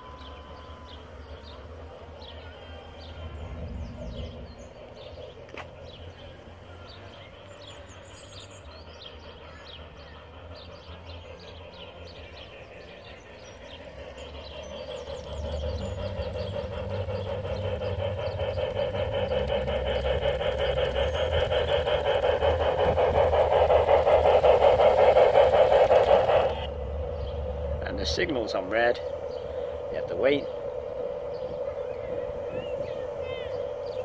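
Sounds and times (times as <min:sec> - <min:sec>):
model train motor hum: 0:00.0 - 0:34.0
rapid rail clicking: 0:04.7 - 0:34.0.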